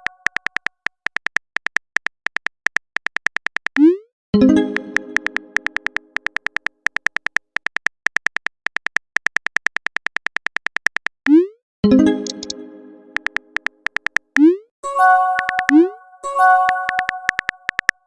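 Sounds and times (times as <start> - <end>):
keyboard tap beeps: 0.0 - 4.0, 4.8 - 11.6, 12.2 - 12.6, 13.2 - 14.6, 15.3 - 18.0
chime chord: 11.9 - 13.2, 14.8 - 17.4.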